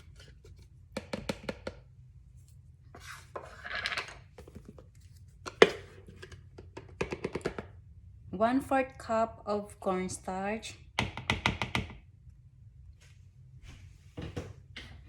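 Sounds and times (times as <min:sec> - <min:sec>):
soft scrape in a bowl: 0:02.4 - 0:03.7.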